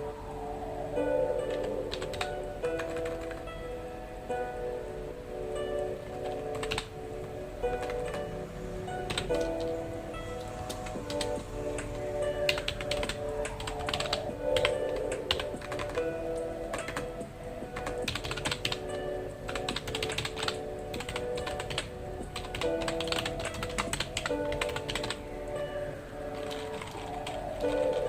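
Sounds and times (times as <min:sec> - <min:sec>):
soft background music: 0:00.0 - 0:28.0
computer keyboard typing: 0:01.5 - 0:03.5, 0:06.0 - 0:07.0, 0:07.6 - 0:08.4, 0:09.0 - 0:09.8, 0:10.4 - 0:25.3, 0:26.3 - 0:28.0.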